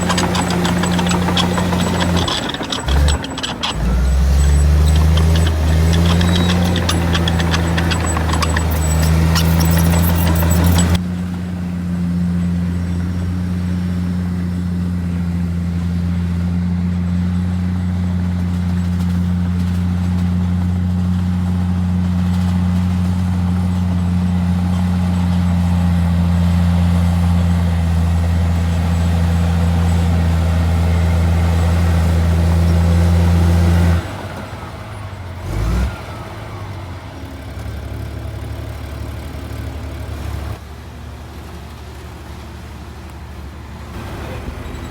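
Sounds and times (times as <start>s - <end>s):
heavy diesel engine droning: 0.0s - 11.0s.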